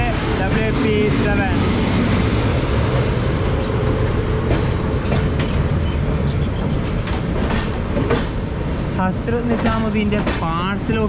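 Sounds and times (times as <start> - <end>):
train rumbling: 0.0 - 11.0
train wheel clicks: 3.4 - 5.6, 6.5 - 8.4, 9.4 - 10.9.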